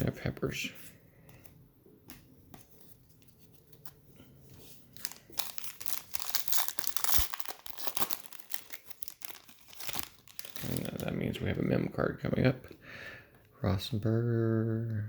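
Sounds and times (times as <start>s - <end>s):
foil wrapper tearing and crinkling: 4.9s - 11.2s.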